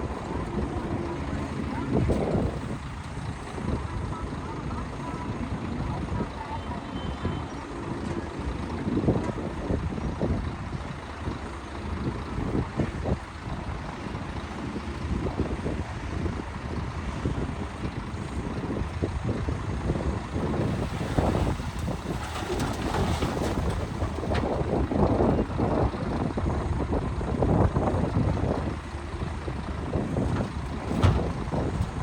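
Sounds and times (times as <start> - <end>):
diesel machinery rumbling: 0.0 - 32.0
clanks and knocks: 20.6 - 24.9, 30.0 - 32.0.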